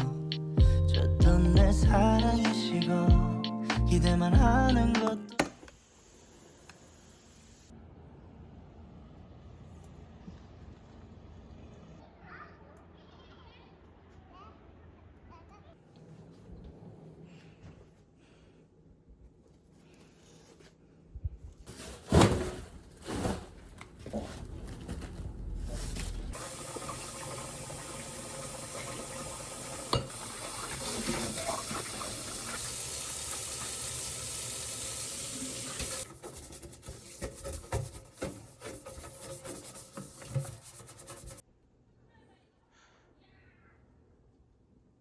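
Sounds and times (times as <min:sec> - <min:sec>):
tap water running into sink: 0:26.4 - 0:38.0.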